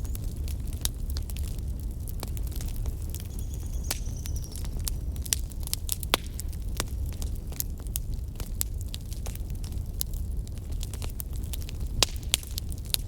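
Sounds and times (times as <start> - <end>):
fire crackling and popping: 0.0 - 13.0
faint high whistle: 3.3 - 5.1.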